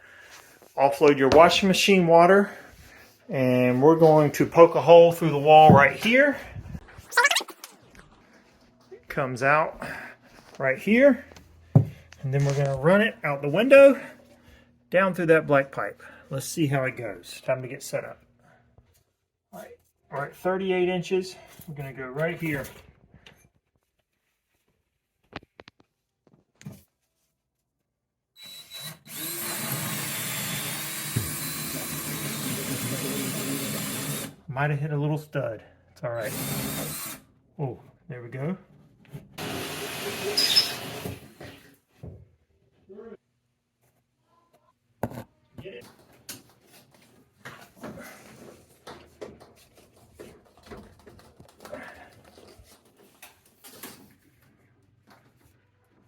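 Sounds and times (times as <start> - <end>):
power drill boring into wall: 28.4 - 34.4, 36.2 - 37.2, 39.4 - 41.7.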